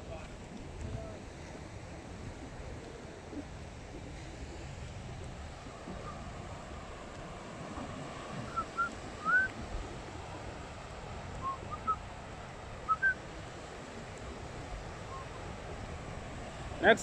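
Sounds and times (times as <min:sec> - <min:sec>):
surf: 0:00.0 - 0:17.0
wind: 0:00.0 - 0:17.0
bird whistled calls: 0:08.5 - 0:09.5, 0:11.4 - 0:12.0, 0:12.9 - 0:13.2, 0:15.1 - 0:15.3.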